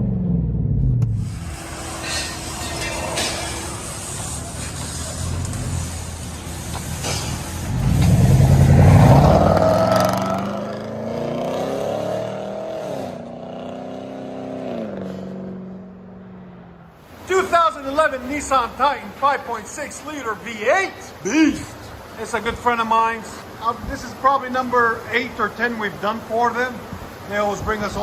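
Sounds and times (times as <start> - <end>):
truck engine idling and revving: 0.0 - 17.1.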